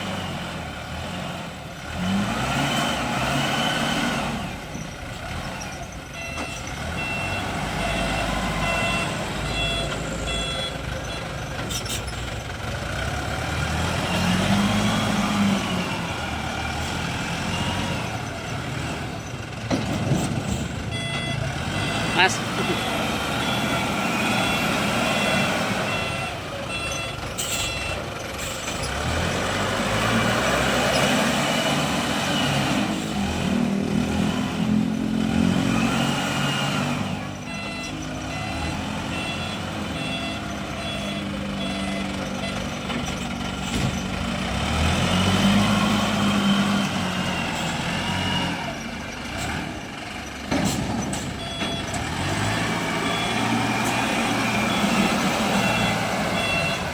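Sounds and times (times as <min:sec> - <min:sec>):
wheel loader diesel engine revving: 0:00.0 - 0:56.9
reversing alarm beeping: 0:05.7 - 0:12.2, 0:20.8 - 0:28.8, 0:36.0 - 0:44.0, 0:50.6 - 0:56.9.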